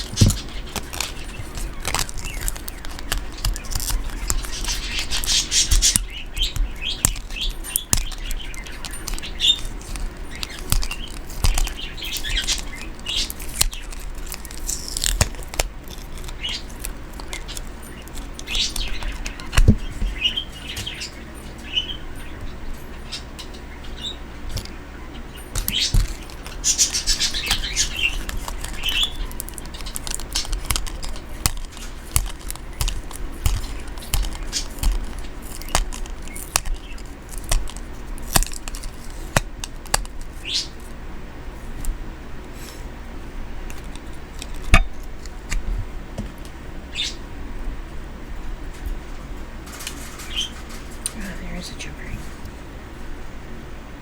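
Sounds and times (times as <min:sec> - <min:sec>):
craft items clicking and tapping: 0:00.0 - 0:20.2, 0:25.6 - 0:40.2
pet bird chirping: 0:00.0 - 0:40.9, 0:46.9 - 0:47.3, 0:50.2 - 0:50.6.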